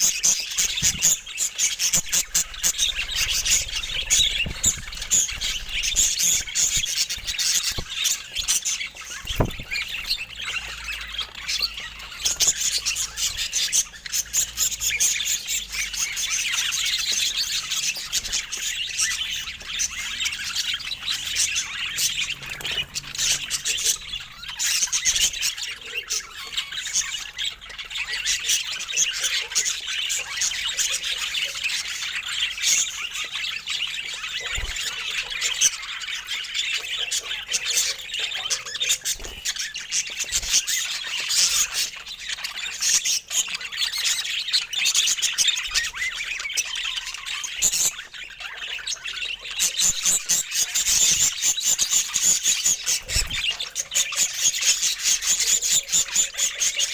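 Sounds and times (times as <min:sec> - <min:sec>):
budgerigars chattering: 0:00.0 - 0:56.9
brief thump: 0:09.3 - 0:09.9.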